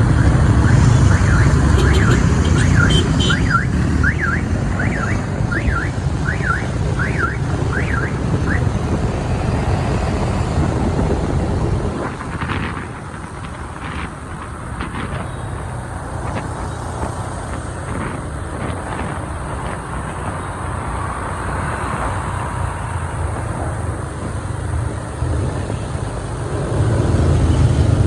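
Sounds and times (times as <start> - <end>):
engines rumbling: 0.0 - 28.0
wind: 0.0 - 28.0
electronic alarm warbling: 0.6 - 8.6.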